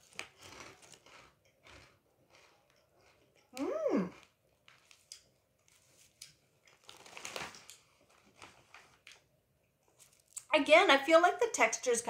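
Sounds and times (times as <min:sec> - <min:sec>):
snack chips being chewed: 0:00.0 - 0:10.5
foil bag crinkling: 0:05.7 - 0:09.2.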